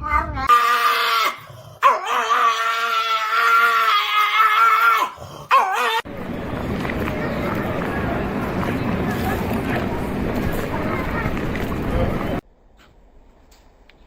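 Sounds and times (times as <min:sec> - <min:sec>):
dog howling: 0:00.5 - 0:06.1.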